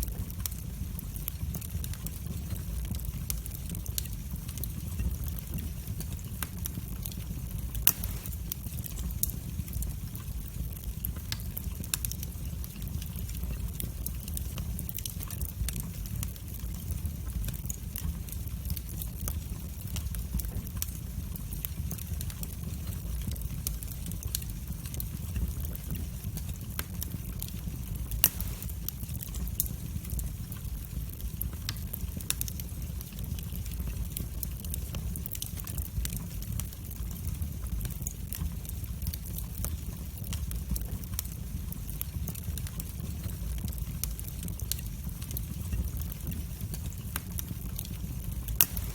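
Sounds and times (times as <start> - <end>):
fire crackling: 0.0 - 48.9
low rumble of flames: 0.0 - 48.9
loud fire pop: 7.9 - 8.4, 28.2 - 28.8.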